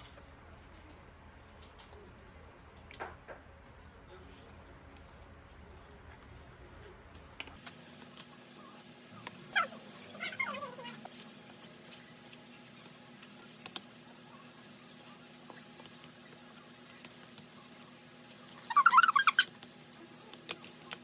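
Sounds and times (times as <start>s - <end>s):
small animal crying: 9.4s - 11.2s, 18.6s - 19.5s.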